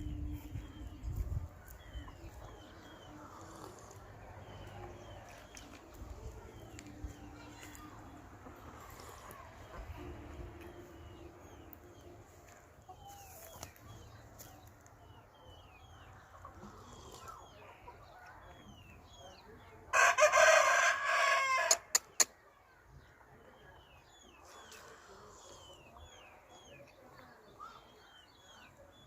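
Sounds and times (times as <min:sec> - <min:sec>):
rooster crowing: 0:20.0 - 0:21.8
small birds chirping: 0:21.9 - 0:29.0.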